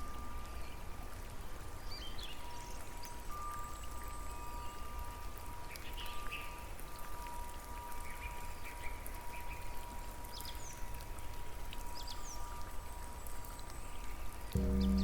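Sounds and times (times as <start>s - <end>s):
rain drops pattering: 0.0s - 15.0s
thin steady tone: 2.5s - 15.0s
high chirps: 14.6s - 15.0s
low rumble: 14.6s - 15.0s.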